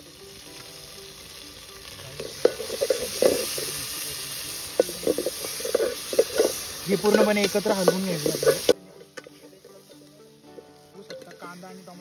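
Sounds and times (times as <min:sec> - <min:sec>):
onion and tomato frying in oil: 0:00.0 - 0:12.0
spoon scraping pan: 0:02.2 - 0:11.4.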